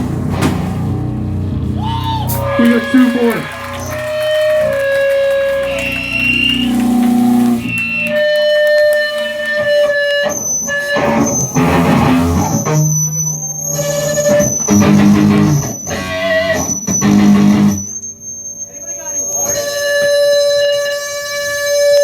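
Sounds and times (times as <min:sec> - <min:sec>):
electric guitar notes: 0:00.0 - 0:18.6
thin high tone: 0:01.8 - 0:08.4.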